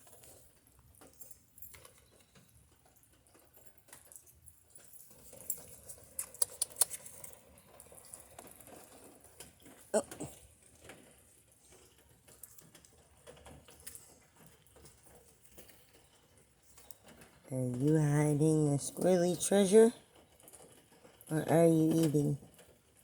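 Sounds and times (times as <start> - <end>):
rain pattering and dripping: 0.0 - 23.0.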